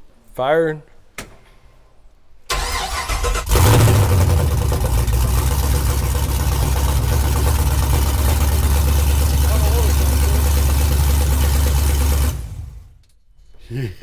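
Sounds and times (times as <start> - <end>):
engine cranking and starting: 2.5 - 13.0.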